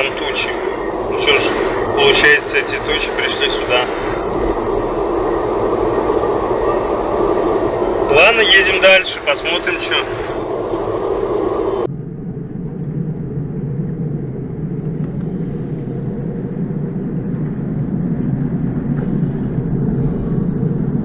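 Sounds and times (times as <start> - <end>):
road noise inside a car: 0.0 - 11.9.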